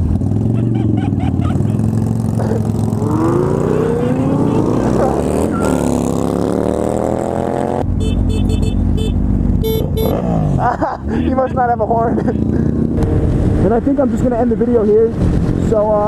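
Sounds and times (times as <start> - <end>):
motorcycle engine accelerating: 0.0 - 10.8, 11.7 - 16.0
wind rush: 13.0 - 16.0.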